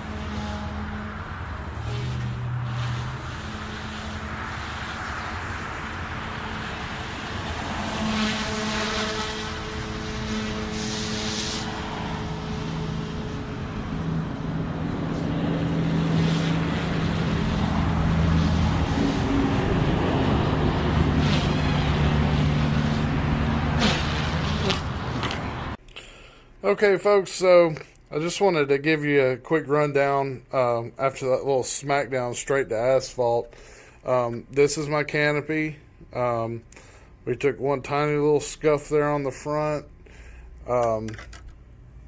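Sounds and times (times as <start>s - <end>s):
rc helicopter rotor and motor hum: 0.0s - 19.7s.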